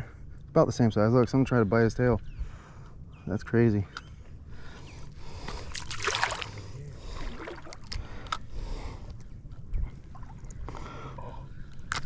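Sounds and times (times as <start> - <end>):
water splashing against kayak: 5.7 - 8.0.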